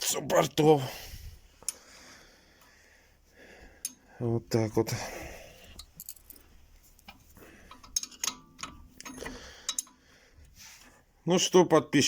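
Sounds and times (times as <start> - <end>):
metal tools clicking and tapping: 3.8 - 4.1, 5.7 - 10.0.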